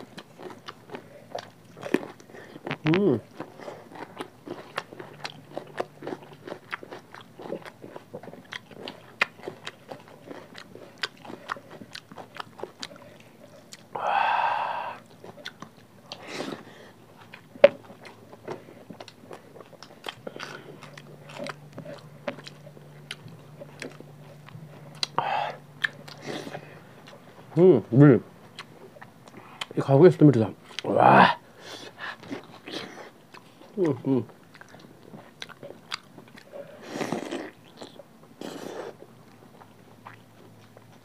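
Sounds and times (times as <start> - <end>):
wet chewing and lip-smacking: 0.0 - 14.0, 15.0 - 27.6, 28.4 - 29.8, 30.6 - 30.9, 31.7 - 41.0
person humming: 2.8 - 3.2.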